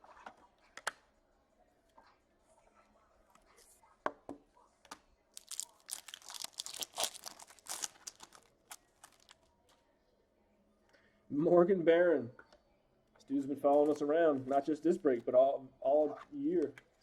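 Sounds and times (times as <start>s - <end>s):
wrapper crinkling and tearing: 5.4s - 9.4s.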